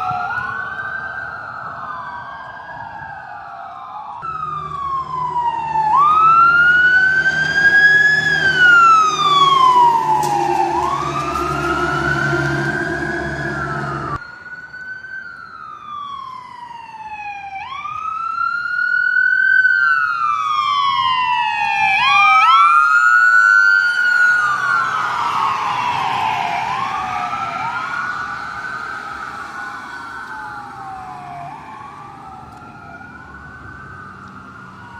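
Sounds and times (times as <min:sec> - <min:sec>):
emergency sirens wailing: 0:00.0 - 0:34.9
heavy truck engine rumbling: 0:04.3 - 0:14.2.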